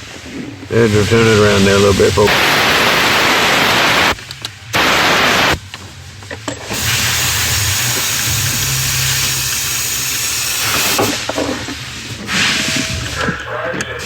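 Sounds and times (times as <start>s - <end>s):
compressed air blow gun hissing: 1.0s - 4.2s, 4.8s - 5.6s, 6.7s - 11.2s.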